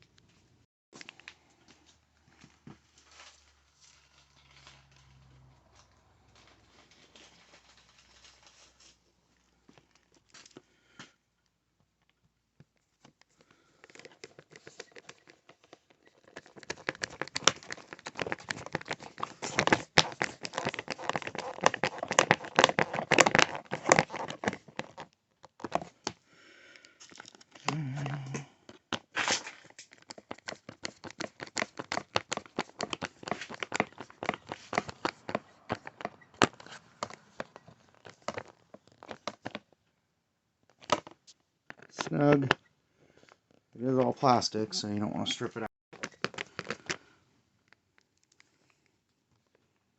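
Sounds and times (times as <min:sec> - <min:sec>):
plastic crinkling: 0:06.4 - 0:10.6, 0:12.8 - 0:26.1, 0:27.0 - 0:39.8, 0:46.0 - 0:49.8.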